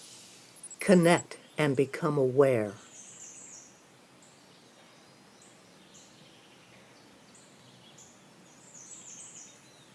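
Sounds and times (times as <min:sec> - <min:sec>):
steady outdoor hiss: 0:00.0 - 0:09.9.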